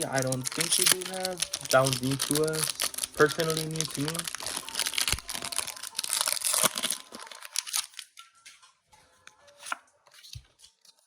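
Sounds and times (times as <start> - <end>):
trading cards handled: 0.0 - 8.0
foil pack crinkling and tearing: 0.0 - 8.2.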